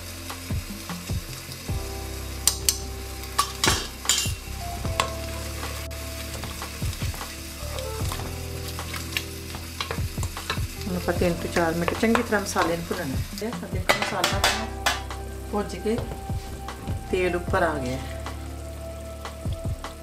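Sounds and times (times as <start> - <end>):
masala sizzling in oil: 0.0 - 20.0
wooden spoon stirring: 3.4 - 15.1.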